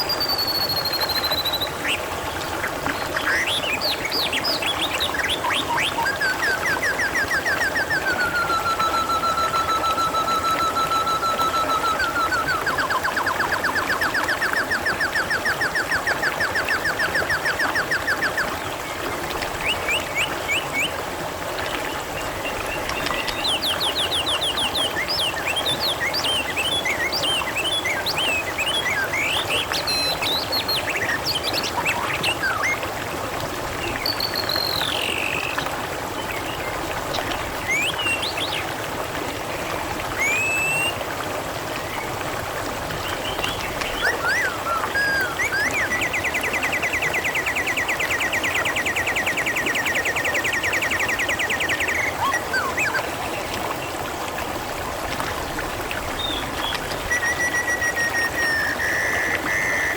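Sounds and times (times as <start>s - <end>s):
small birds chirping and whistling: 0.0s - 2.0s, 3.2s - 18.6s, 22.5s - 32.8s, 33.8s - 35.6s, 40.2s - 41.0s, 43.1s - 53.2s, 56.2s - 59.9s
water trickling: 0.0s - 59.9s.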